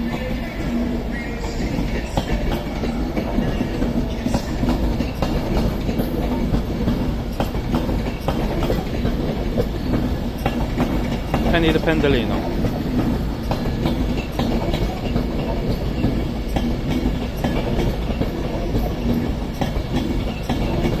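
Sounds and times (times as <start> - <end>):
electric train running past: 0.0 - 21.0
wheels clattering over rail joints: 0.0 - 21.0.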